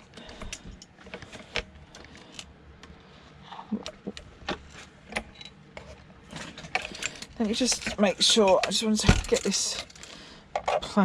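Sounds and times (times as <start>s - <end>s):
metal parts and tools clicking: 5.1s - 10.8s.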